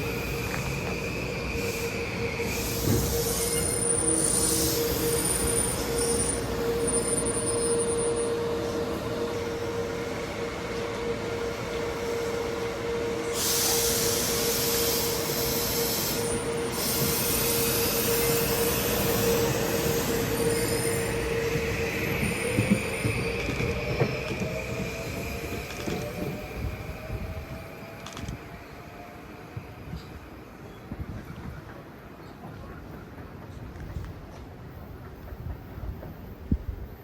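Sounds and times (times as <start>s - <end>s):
train wheels squealing: 0.0s - 36.2s
train rumble and hiss: 0.0s - 37.0s.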